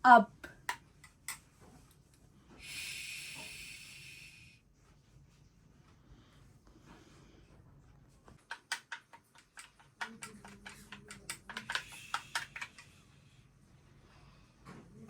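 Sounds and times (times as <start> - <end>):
faint steady hum: 0.0 - 15.0
light clicks and taps: 8.3 - 12.9.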